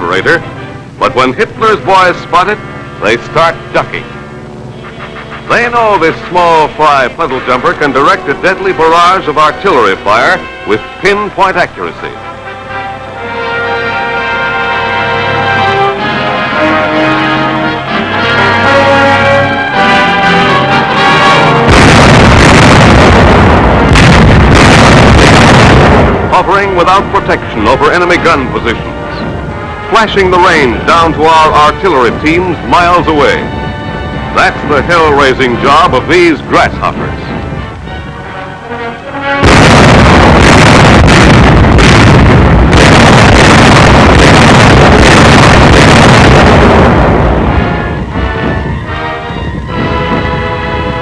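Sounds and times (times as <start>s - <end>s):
artillery barrage rumble: 0.0s - 12.2s, 15.4s - 51.0s
orchestral music with brass: 0.0s - 51.0s
artillery fire and explosions: 20.4s - 29.4s, 39.4s - 49.0s
sharp blasts: 20.5s - 33.5s, 39.4s - 48.9s.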